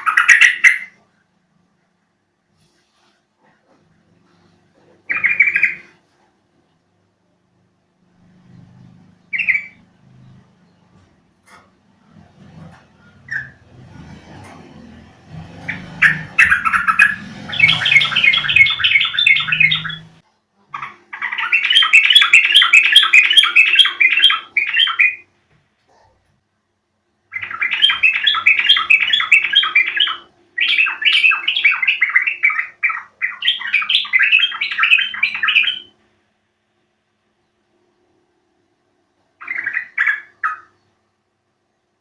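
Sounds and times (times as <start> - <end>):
bird chattering song: 0.0 - 1.3, 3.4 - 6.0, 8.4 - 14.0, 14.8 - 25.3, 27.3 - 36.0, 39.4 - 41.1.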